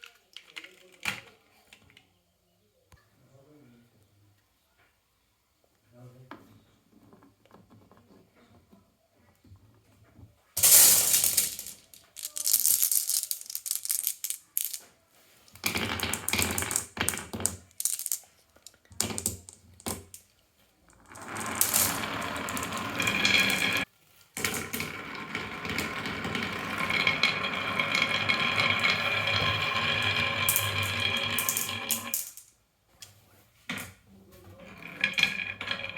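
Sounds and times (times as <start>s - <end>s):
marbles rattling down wooden track: 10.6s - 14.9s, 15.5s - 20.2s, 20.9s - 32.5s, 34.6s - 35.9s.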